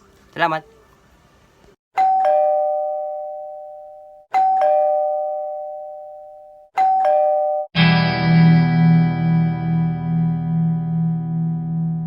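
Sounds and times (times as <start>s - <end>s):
two-tone doorbell chime: 2.0s - 7.7s.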